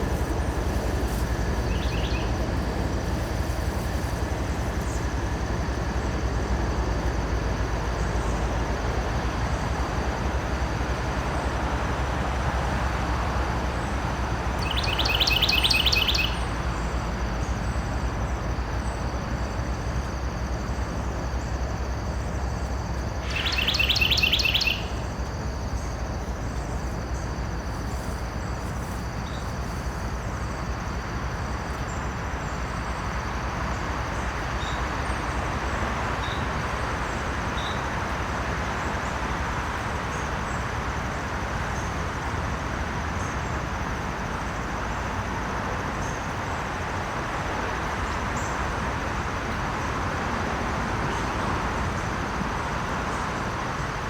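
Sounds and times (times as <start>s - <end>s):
distant bird chirps: 0.0s - 6.6s, 14.4s - 17.8s, 23.0s - 30.8s
outdoor background hiss: 0.0s - 54.0s
bird trilling: 1.1s - 2.5s, 14.6s - 16.5s, 23.2s - 25.2s
faint high drone: 23.2s - 25.2s.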